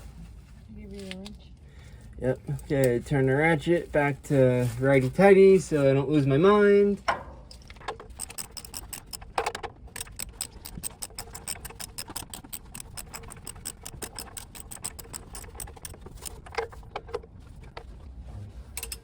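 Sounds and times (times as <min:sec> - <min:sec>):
socket ratchet clicking: 0:07.8 - 0:17.1.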